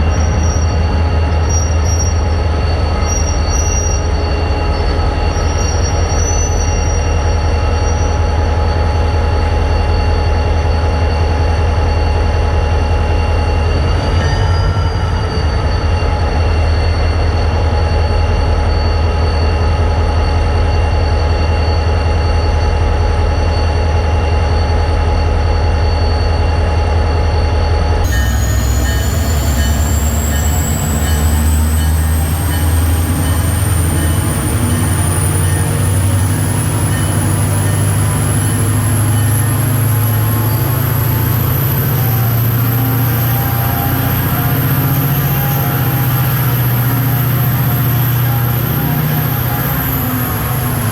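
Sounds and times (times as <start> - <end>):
diesel locomotive rumble: 0.0 - 50.9
high whine rising in pitch: 28.0 - 50.9.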